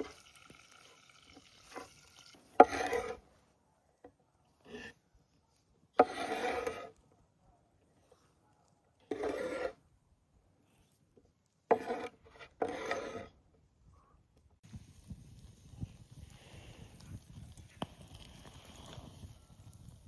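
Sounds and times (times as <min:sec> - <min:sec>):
short rasping scrapes: 0:02.5 - 0:03.3, 0:04.6 - 0:05.0, 0:06.0 - 0:07.0, 0:09.1 - 0:09.8, 0:11.7 - 0:13.3.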